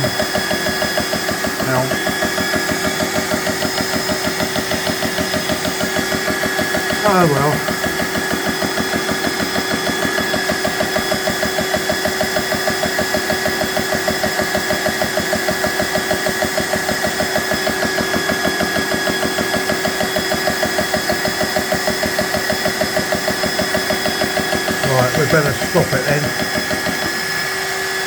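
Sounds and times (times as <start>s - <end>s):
air compressor pulsing: 0.0s - 28.0s.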